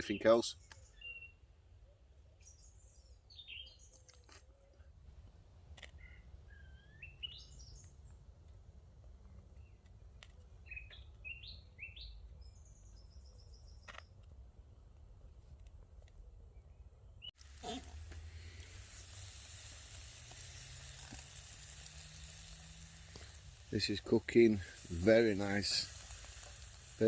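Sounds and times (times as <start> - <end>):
birds chirping: 0.0 - 4.9, 5.8 - 8.3, 9.3 - 14.2, 16.3 - 27.0.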